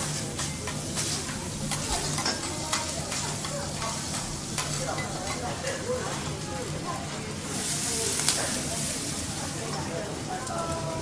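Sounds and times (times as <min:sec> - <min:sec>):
metal spatulas clicking and scraping: 0:00.0 - 0:06.3
food sizzling on hot plate: 0:00.0 - 0:11.0.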